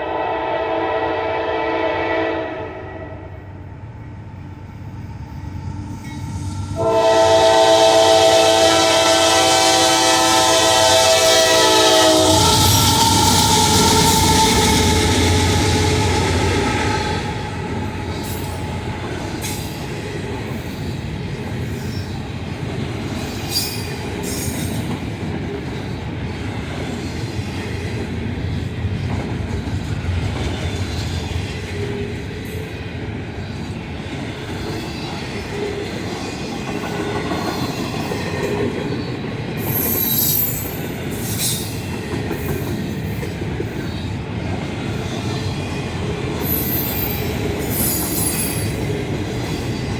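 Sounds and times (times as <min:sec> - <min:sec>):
locomotive horn: 0:00.0 - 0:03.3, 0:06.8 - 0:18.5
freight train rumbling past: 0:00.0 - 0:49.9
high wheel squeal: 0:12.2 - 0:19.7, 0:39.6 - 0:41.7, 0:46.4 - 0:48.8.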